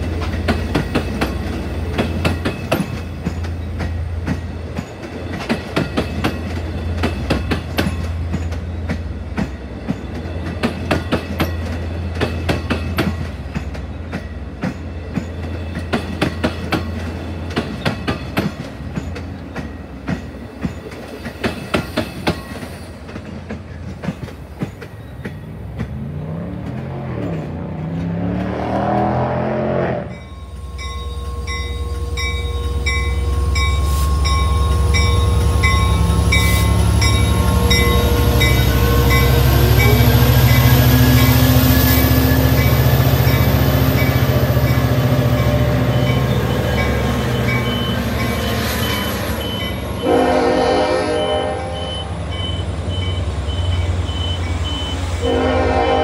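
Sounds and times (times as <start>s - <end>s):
train wheels clicking over joints: 0.0s - 29.2s
diesel locomotive engine rumble: 0.0s - 56.0s
pulsing high ringing tone: 30.1s - 50.2s.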